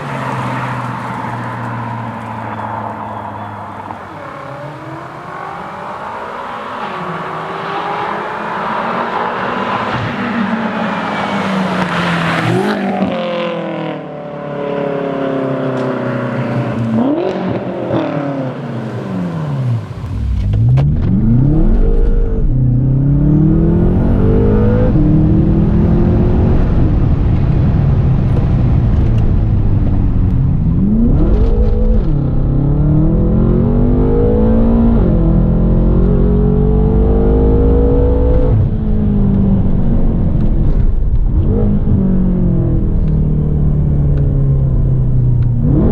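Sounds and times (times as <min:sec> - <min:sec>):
car engine revving: 0:16.4 - 0:45.9
deep low rumble: 0:20.0 - 0:36.0.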